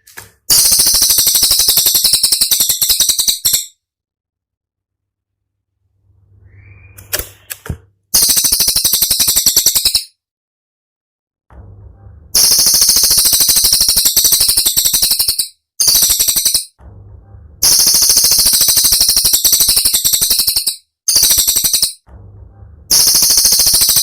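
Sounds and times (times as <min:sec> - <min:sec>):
bird song high rapid notes: 0:00.5 - 0:03.8, 0:06.3 - 0:07.5, 0:08.2 - 0:10.2, 0:12.4 - 0:16.8, 0:17.6 - 0:22.0, 0:22.9 - 0:24.0.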